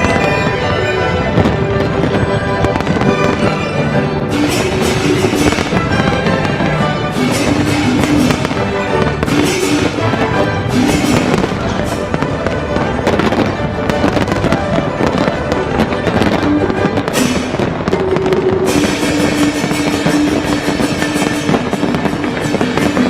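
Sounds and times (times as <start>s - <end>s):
fireworks cracks and bangs: 0.0s - 23.0s
loud music: 0.0s - 23.0s.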